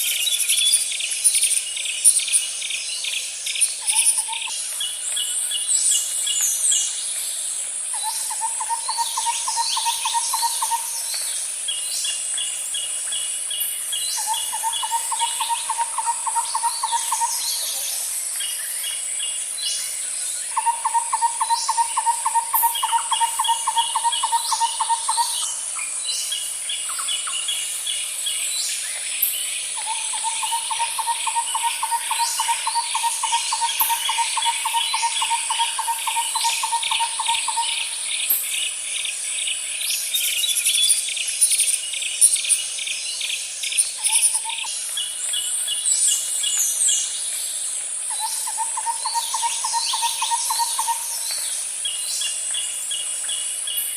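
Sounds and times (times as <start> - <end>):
high insect drone: 0.0 - 53.9
bird chirps and calls: 8.0 - 11.2, 14.2 - 19.0, 20.5 - 27.5, 29.8 - 38.7, 48.1 - 51.5.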